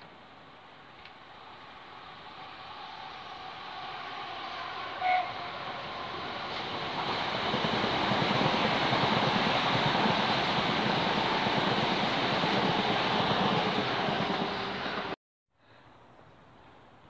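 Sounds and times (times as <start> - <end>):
train rumbling past: 1.1 - 15.2
train horn toot: 4.1 - 6.5.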